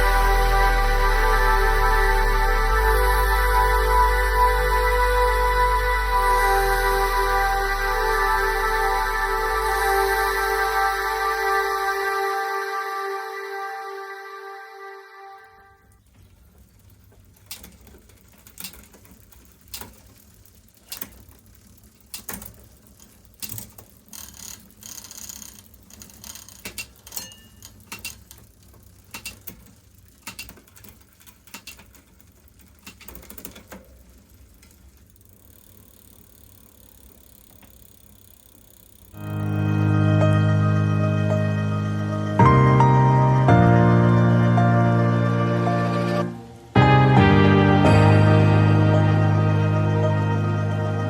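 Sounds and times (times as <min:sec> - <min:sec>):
steady low hum: 0:00.0 - 0:17.7, 0:34.0 - 0:51.0
bicycle parts clicking and ratcheting: 0:15.9 - 0:39.4.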